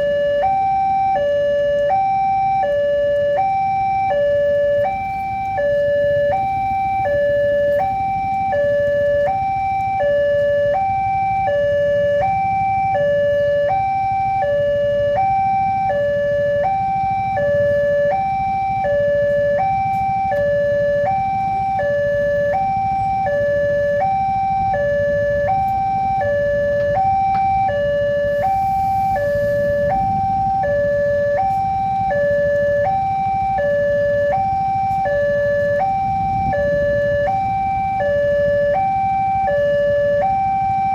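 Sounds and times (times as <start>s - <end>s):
two-tone crossing alarm: 0.0s - 40.9s.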